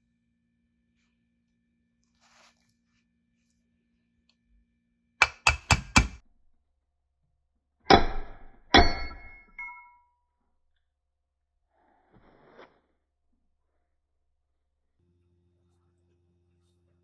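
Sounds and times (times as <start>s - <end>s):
metal taps and clangs: 5.2s - 6.2s, 7.9s - 10.0s.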